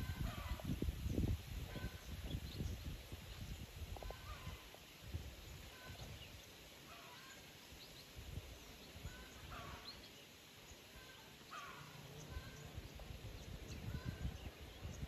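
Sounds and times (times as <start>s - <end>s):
faint bird chirps: 5.4s - 15.0s.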